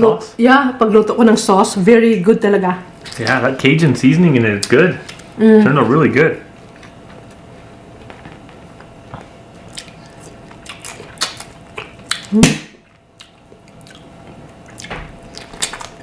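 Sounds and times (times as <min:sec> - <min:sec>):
wet chewing and smacking: 0:06.6 - 0:16.0.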